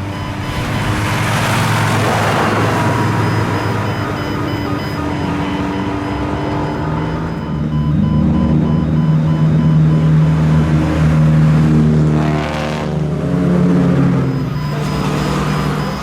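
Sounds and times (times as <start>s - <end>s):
rush of noise: 0.0s - 5.3s
loud car exhaust: 0.0s - 16.0s.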